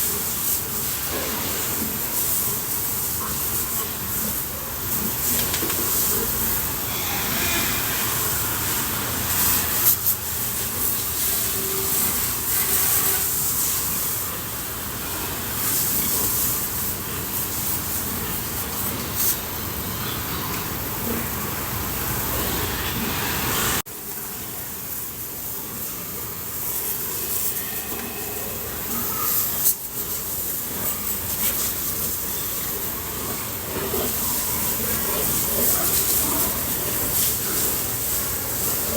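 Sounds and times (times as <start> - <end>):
water spraying from a hose: 0.0 - 38.9.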